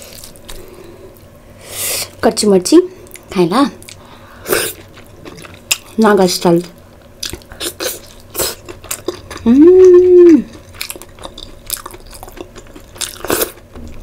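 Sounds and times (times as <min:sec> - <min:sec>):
wet chewing and smacks: 0:04.8 - 0:06.0, 0:07.2 - 0:09.4, 0:10.5 - 0:14.0
person humming mmm: 0:09.3 - 0:10.6.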